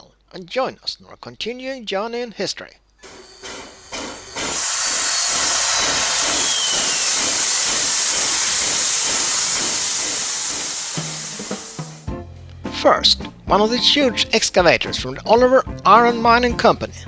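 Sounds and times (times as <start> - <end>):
loud steady hiss: 3.0 - 12.1
faint falling whistle: 5.8 - 7.8.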